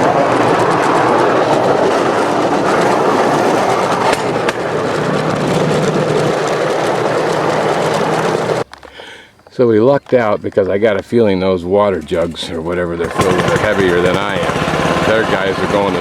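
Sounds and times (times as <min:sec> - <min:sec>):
motor running: 0:00.0 - 0:08.6, 0:13.0 - 0:16.0
wheels clattering on track: 0:00.0 - 0:08.9, 0:09.5 - 0:16.0.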